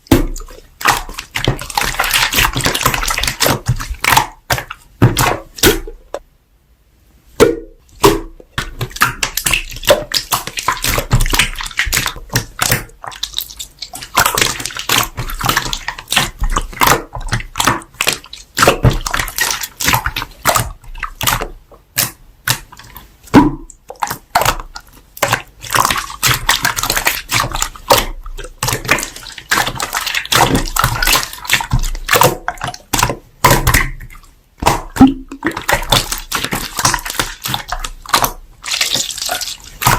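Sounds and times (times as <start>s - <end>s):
slime squishing and popping: 7.4s - 39.9s.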